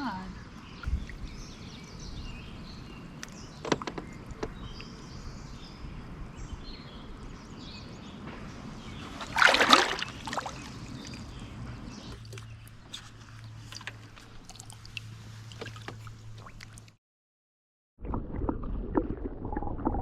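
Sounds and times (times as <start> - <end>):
loud water splash: 8.9 - 11.2.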